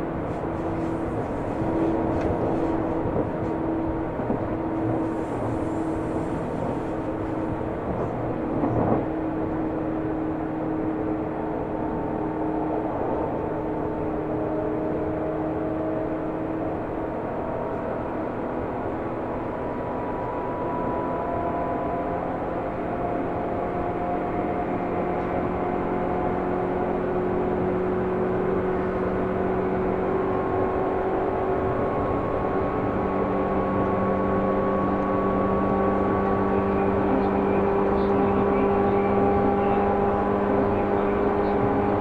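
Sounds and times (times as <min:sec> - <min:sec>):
train wheels and motors rumbling: 0:00.0 - 0:19.5, 0:22.3 - 0:42.0
train motor humming tones: 0:28.3 - 0:42.0.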